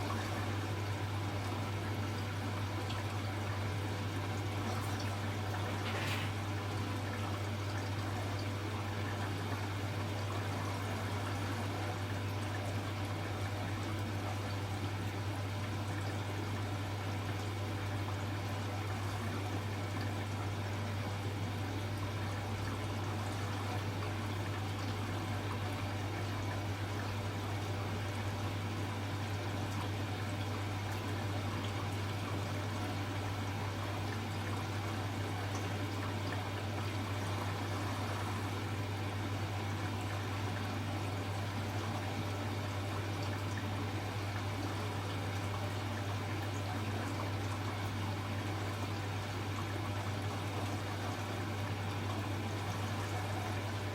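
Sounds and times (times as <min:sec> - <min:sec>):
washing machine low hum: 0:00.0 - 0:53.9
water running in washing machine: 0:00.0 - 0:53.9.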